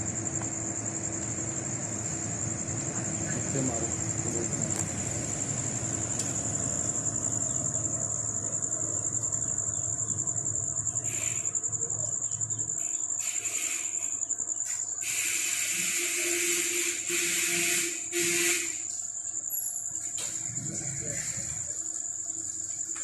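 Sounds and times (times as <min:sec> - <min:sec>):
insect trill: 0:00.0 - 0:23.0
rustling hiss: 0:13.2 - 0:18.8.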